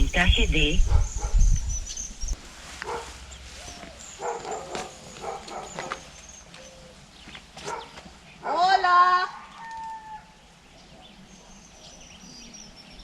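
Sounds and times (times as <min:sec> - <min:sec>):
dog barking: 0:02.8 - 0:03.2, 0:04.2 - 0:06.0, 0:07.6 - 0:09.5.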